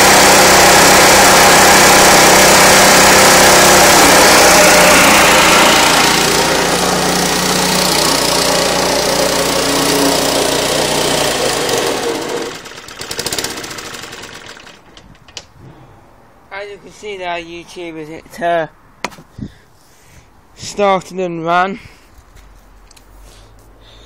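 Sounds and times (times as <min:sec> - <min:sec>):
engine running down: 0:00.0 - 0:15.0
lawnmower engine running: 0:00.0 - 0:15.4.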